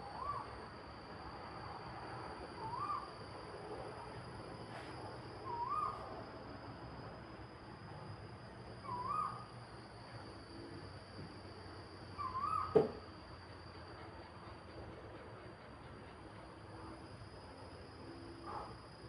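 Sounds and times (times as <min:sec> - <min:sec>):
bird whistled calls: 0:05.5 - 0:06.0, 0:08.8 - 0:09.4, 0:12.2 - 0:12.8.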